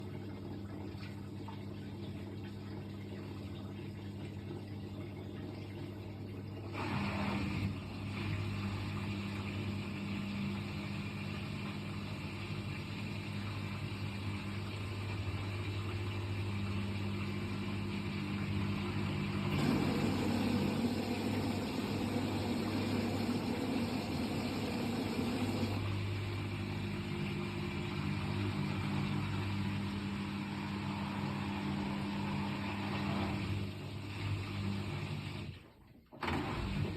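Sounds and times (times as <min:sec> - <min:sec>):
washing machine motor hum: 0:00.0 - 0:36.9
washing machine drum: 0:06.6 - 0:35.1.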